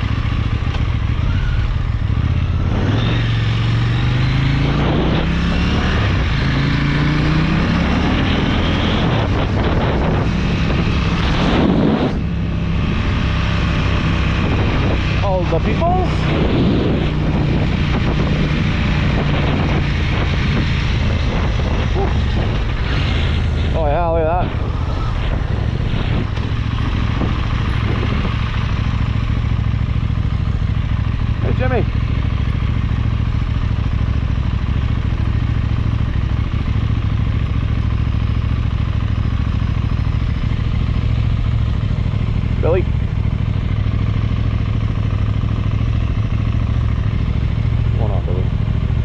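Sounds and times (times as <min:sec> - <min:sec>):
motorcycle engine cruising: 0:00.0 - 0:49.0
wind rushing over microphone: 0:01.1 - 0:29.9.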